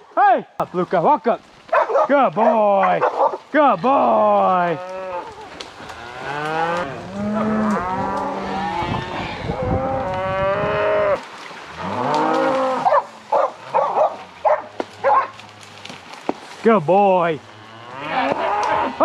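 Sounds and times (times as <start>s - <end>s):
cows mooing: 3.7s - 16.0s, 17.2s - 19.0s.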